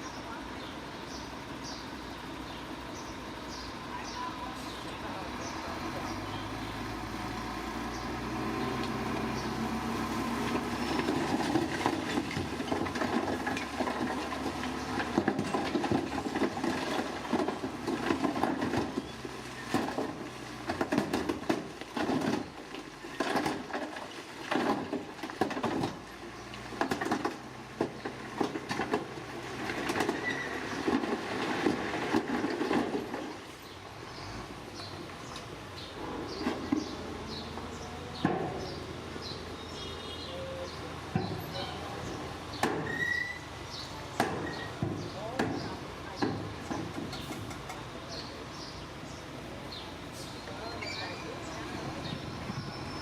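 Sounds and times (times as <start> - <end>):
diesel machinery engine hum: 0.0 - 53.0
clatter and grinding: 10.4 - 34.2.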